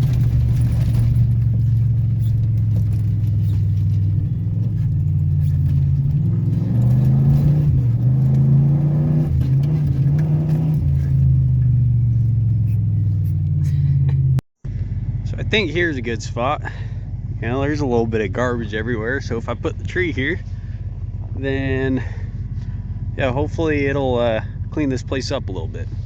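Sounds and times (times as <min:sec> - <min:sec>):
pickup truck engine running: 0:00.0 - 0:26.0.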